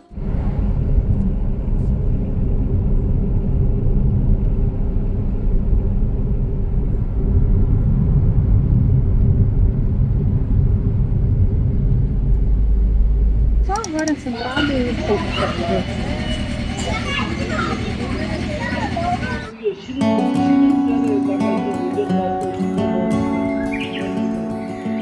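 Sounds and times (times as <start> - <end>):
road vehicle rumbling: 0.0 - 19.8
faint steady hum: 0.1 - 19.6.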